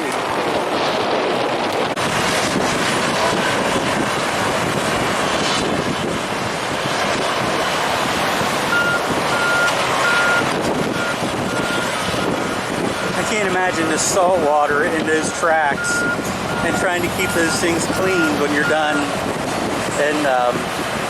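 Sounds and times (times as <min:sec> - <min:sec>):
wind buffeting microphone: 0:00.0 - 0:21.0
reversing alarm beeping: 0:08.7 - 0:13.3, 0:15.2 - 0:19.2.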